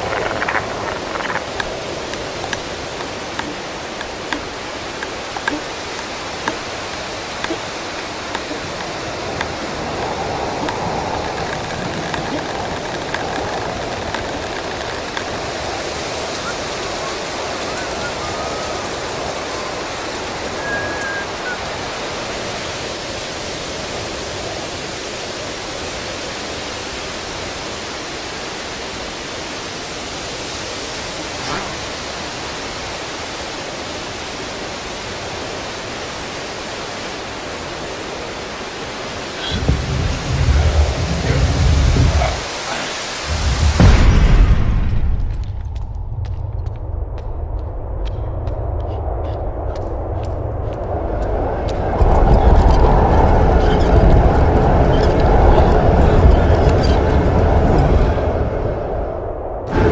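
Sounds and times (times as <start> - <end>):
faint clicks: 0.0 - 19.8
rushing wind: 0.0 - 59.9.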